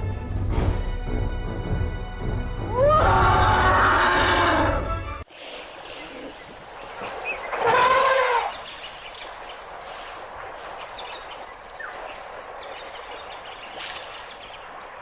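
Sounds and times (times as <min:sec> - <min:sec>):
background hiss: 0:05.2 - 0:15.0
animal cry: 0:07.5 - 0:08.6.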